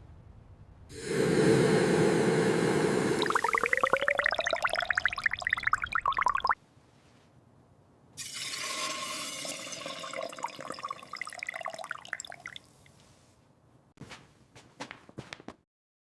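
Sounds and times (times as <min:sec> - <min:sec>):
hissing trickling liquid: 0:00.9 - 0:06.6, 0:08.2 - 0:12.9.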